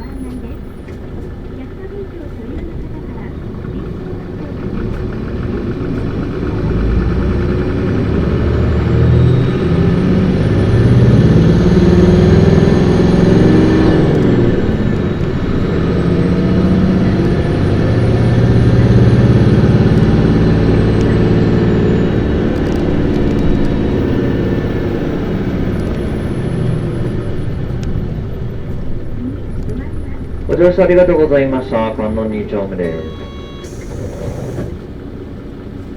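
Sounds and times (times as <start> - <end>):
bus diesel engine revving: 0.0 - 35.9
thin high engine whine: 12.2 - 34.9.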